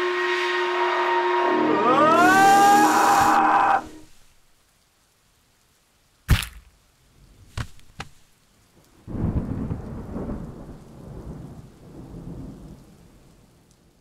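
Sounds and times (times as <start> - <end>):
sharp cracks: 6.2 - 6.8.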